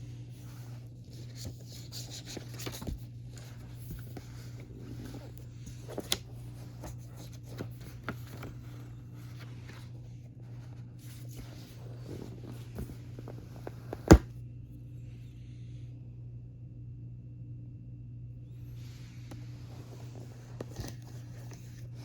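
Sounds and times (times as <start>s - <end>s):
steady low hum: 0.0s - 22.0s
paper and plastic packaging rustling: 0.3s - 14.2s.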